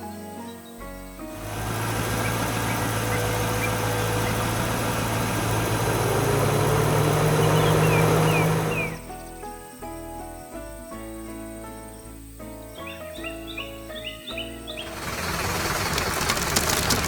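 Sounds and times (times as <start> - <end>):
heavy machine engine running: 1.3 - 9.0, 14.8 - 17.0.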